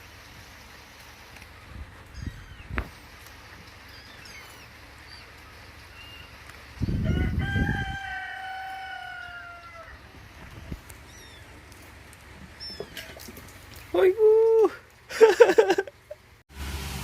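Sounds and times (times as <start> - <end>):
small birds chirping: 0.7 - 7.1, 9.2 - 14.0
rooster crowing: 6.9 - 10.2
low rumble on microphone: 10.0 - 12.6.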